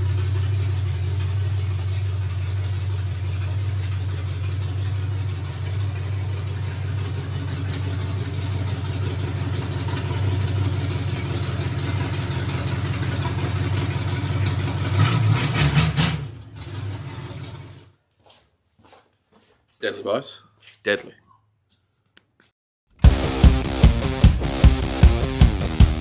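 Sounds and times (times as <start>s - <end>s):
engine idling: 0.0s - 15.2s, 23.0s - 26.0s.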